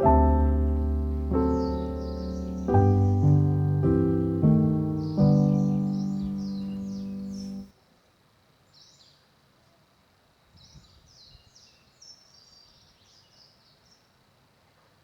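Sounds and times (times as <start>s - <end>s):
faint birds chirping: 0.0s - 8.0s, 8.6s - 15.0s
low outdoor hiss: 0.0s - 15.0s.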